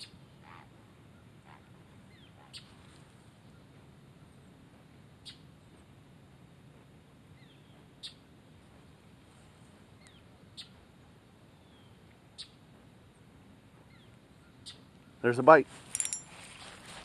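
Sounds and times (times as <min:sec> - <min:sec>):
bird chip calls: 0:01.5 - 0:02.7, 0:13.9 - 0:15.3.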